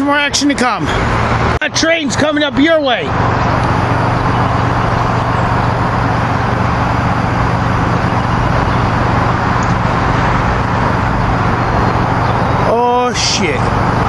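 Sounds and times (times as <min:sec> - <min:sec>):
low hum: 0:03.1 - 0:14.0.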